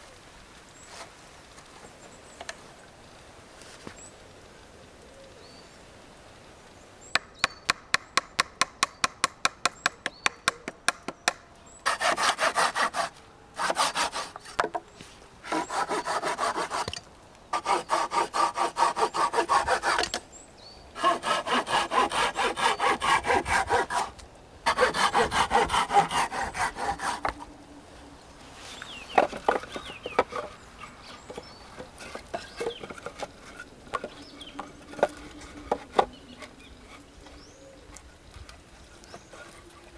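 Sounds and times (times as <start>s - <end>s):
hand saw cutting wood: 11.8s - 14.8s, 15.4s - 20.2s, 21.0s - 27.4s, 29.0s - 37.0s.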